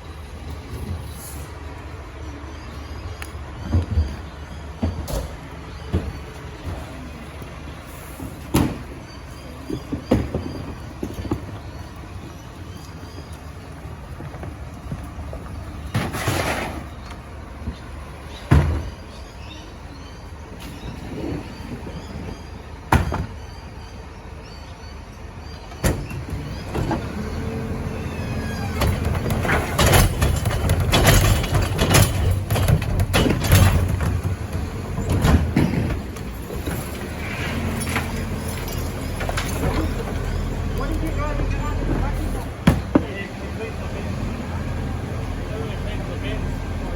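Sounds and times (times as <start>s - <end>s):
garbage truck engine running: 0.0s - 46.9s
metal bangs and knocks: 28.6s - 36.9s.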